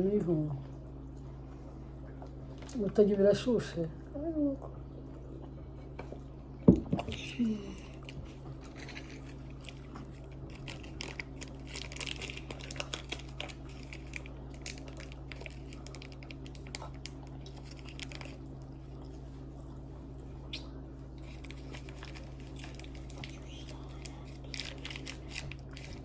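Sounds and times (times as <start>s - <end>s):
steady low hum: 0.0s - 26.0s
person chewing: 20.4s - 26.0s
mouth clicks and smacks: 20.5s - 20.8s.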